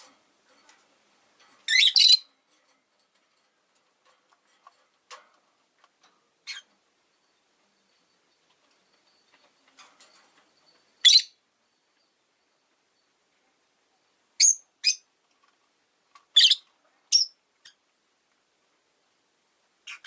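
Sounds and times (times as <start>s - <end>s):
faint soft bird chatter: 0.0s - 18.0s, 19.8s - 20.0s
parrot high chirps: 1.7s - 2.3s, 6.4s - 6.7s, 11.0s - 11.4s, 14.4s - 15.1s, 16.3s - 17.8s.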